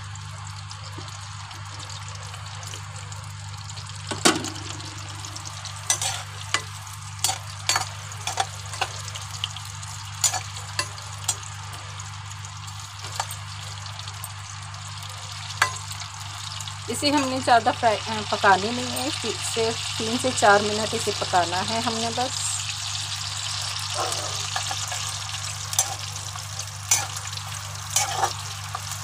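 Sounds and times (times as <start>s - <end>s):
vegetables sizzling in oil: 0.0s - 29.0s
low hum: 1.4s - 17.3s
spatula clicking and scraping: 5.9s - 9.3s, 10.2s - 11.8s, 24.4s - 26.2s, 26.9s - 28.9s.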